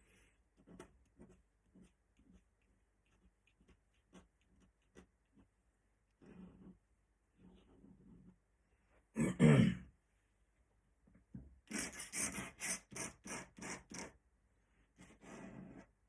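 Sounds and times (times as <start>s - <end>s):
pen scratching on paper: 3.0s - 5.4s, 11.7s - 14.2s, 15.0s - 15.9s.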